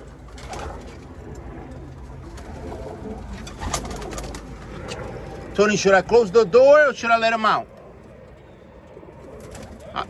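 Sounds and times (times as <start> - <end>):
pigeons cooing: 0.0 - 5.5, 8.3 - 10.0.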